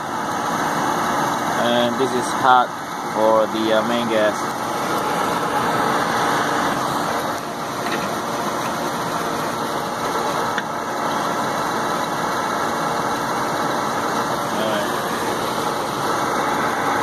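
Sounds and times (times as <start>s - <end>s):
hvac fan and motor drone: 0.0s - 17.0s.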